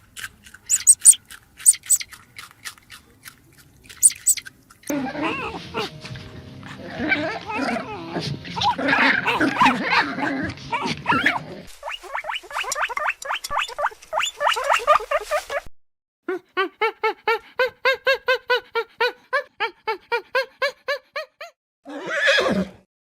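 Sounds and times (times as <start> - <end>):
animal squeals and whines: 0.7 - 2.0, 4.0 - 5.9, 6.7 - 15.7
short rising yelp-like calls: 0.7 - 2.0, 4.0 - 4.4.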